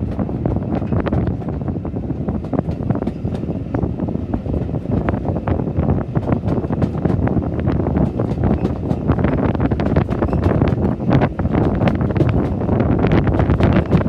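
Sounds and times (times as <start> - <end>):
train coach rumbling on track: 0.0 - 14.0
wind buffeting microphone: 0.0 - 14.0
knocks and rattles: 8.0 - 14.0.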